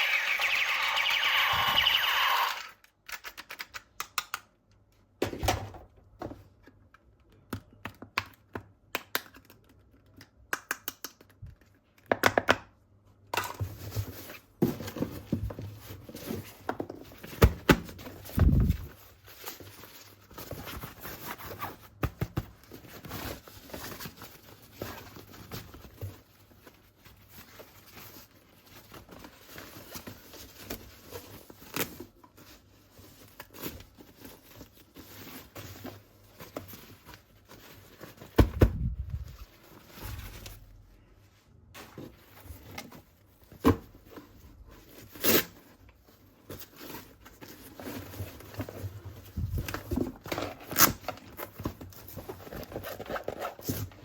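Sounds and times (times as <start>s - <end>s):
plastic pieces clicking and tapping: 3.0s - 4.5s.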